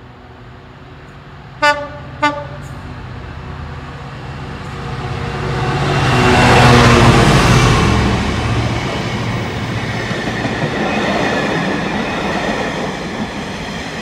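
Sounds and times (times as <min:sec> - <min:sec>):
diesel locomotive engine: 0:00.0 - 0:14.0
locomotive horn toots: 0:01.6 - 0:02.8.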